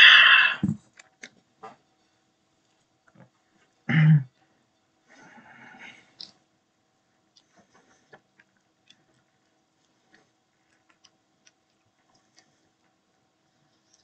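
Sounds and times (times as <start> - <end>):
low steady hum: 0.0 - 14.0
faint chewing clicks: 5.9 - 6.5, 7.1 - 14.0.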